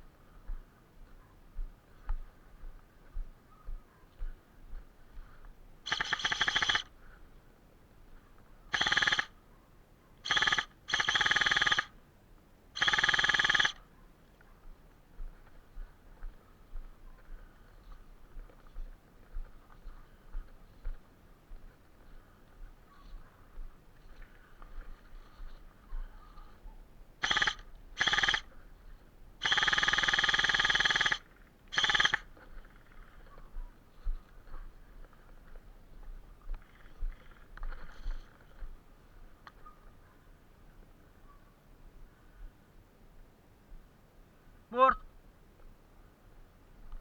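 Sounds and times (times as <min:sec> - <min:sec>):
airsoft gun firing bursts: 0:05.9 - 0:06.9, 0:08.7 - 0:09.3, 0:10.2 - 0:11.9, 0:12.8 - 0:13.8, 0:27.2 - 0:28.5, 0:29.4 - 0:32.3.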